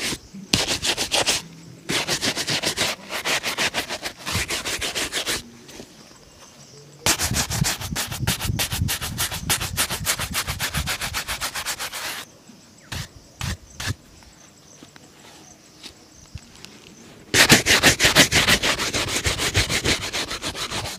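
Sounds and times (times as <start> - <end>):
shoe being rubbed: 0.0 - 5.5, 7.1 - 12.2, 12.9 - 14.0, 17.3 - 20.9.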